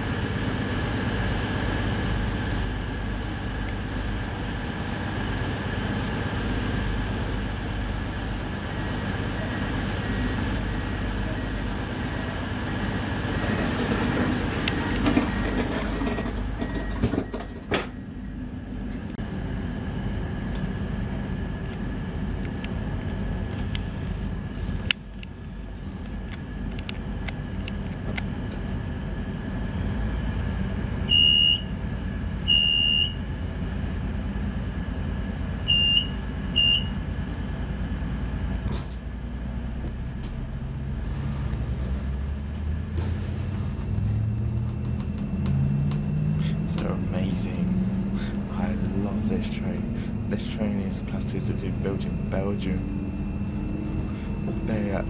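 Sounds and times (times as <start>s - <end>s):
diesel engine humming: 0.0s - 55.0s
train door hissing shut: 38.6s - 39.0s.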